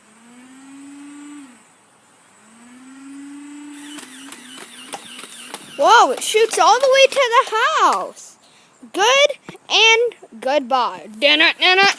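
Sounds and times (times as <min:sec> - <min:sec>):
flywheels whining: 0:00.0 - 0:08.2
sharp clicks: 0:03.8 - 0:07.2.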